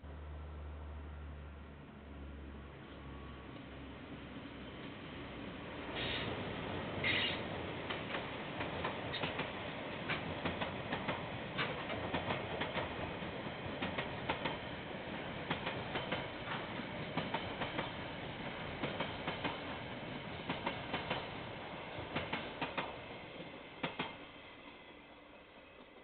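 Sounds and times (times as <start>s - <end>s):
train rumbling past: 0.0s - 26.0s.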